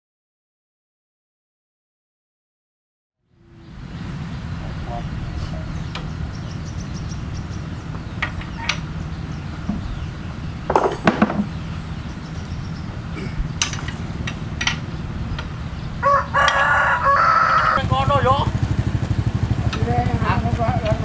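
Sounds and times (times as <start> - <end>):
diesel engine rumbling: 3.2 - 21.0
rooster crowing: 15.6 - 17.9.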